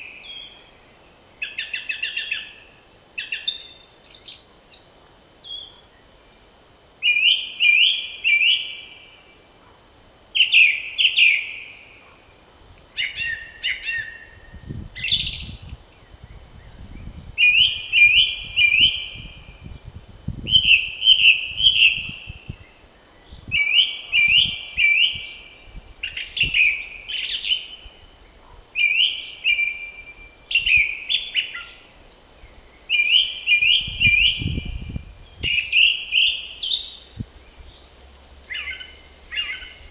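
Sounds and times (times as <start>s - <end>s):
songbird singing: 0.0s - 39.9s
wind rumble on microphone: 12.5s - 27.2s, 30.1s - 31.0s, 33.5s - 36.1s, 36.9s - 37.9s
other birds calling: 37.6s - 39.9s.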